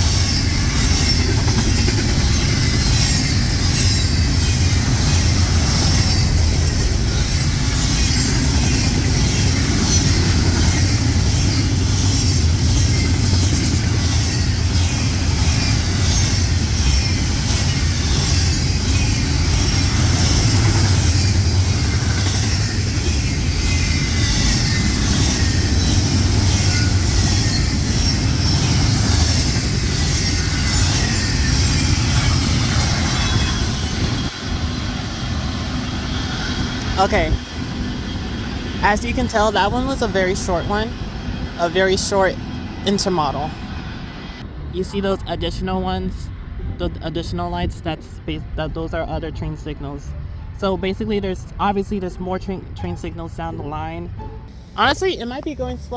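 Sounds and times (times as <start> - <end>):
wheels clicking over rails: 0.0 - 34.3
freight train rumble: 0.0 - 55.9.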